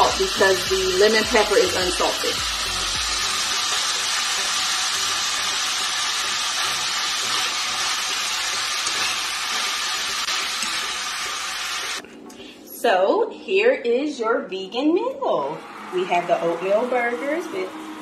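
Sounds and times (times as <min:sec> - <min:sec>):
beans sizzling in a pan: 0:00.0 - 0:12.0.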